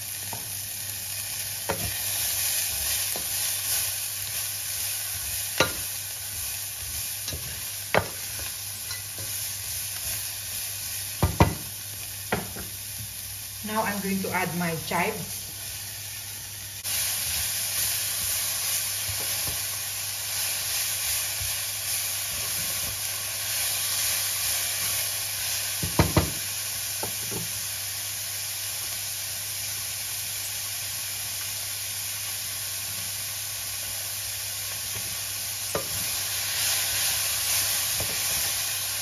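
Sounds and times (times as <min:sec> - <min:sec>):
vegetables sizzling in a pan: 0:00.0 - 0:39.0
stirring in a pan: 0:01.3 - 0:11.7.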